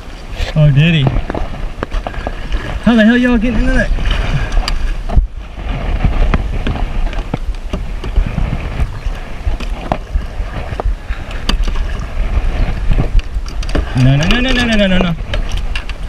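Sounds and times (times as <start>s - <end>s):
river water moving: 0.0s - 16.0s
wind on microphone: 0.0s - 16.0s
gear knocking against hull: 5.9s - 16.0s.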